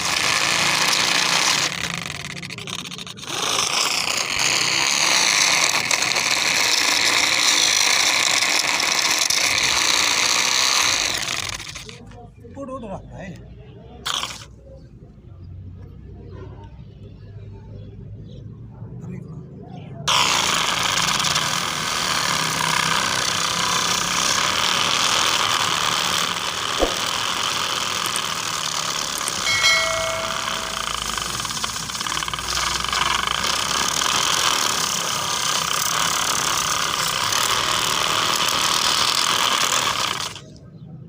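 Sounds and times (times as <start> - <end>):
tractor loader running: 0.0 - 12.2, 20.1 - 40.6.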